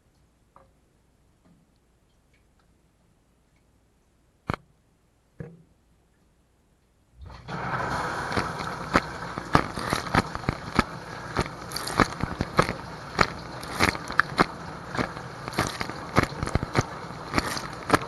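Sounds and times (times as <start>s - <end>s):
dishwasher spraying water: 7.2s - 18.0s
sharp knocks and splats: 7.9s - 18.0s.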